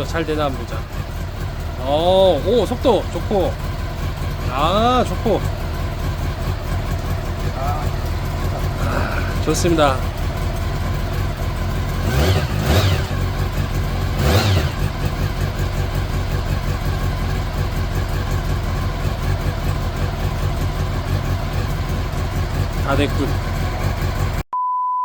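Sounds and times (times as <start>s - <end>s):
motorcycle engine idling: 0.0s - 24.4s.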